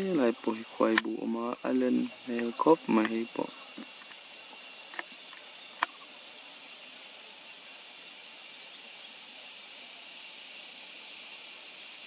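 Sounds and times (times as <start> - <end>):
high-pitched hiss: 0.0 - 12.0
sharp click: 0.9 - 1.2.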